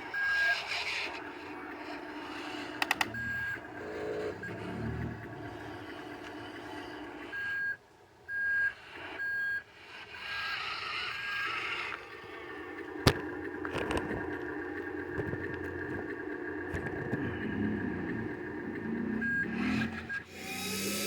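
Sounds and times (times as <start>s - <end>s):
reverse alarm beeping: 0.0s - 11.6s, 17.2s - 20.5s
truck engine running: 0.0s - 21.0s.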